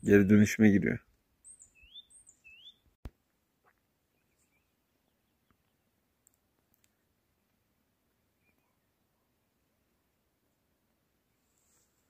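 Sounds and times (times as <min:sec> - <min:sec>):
whistled bird chirps: 0:01.4 - 0:02.9
faint ticks: 0:05.5 - 0:07.0.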